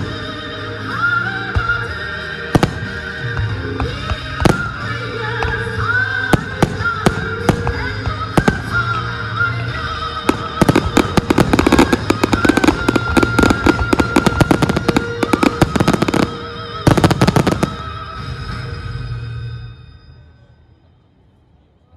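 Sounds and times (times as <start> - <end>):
music: 0.0 - 21.9
fireworks popping and crackling: 2.6 - 9.1, 9.7 - 18.4.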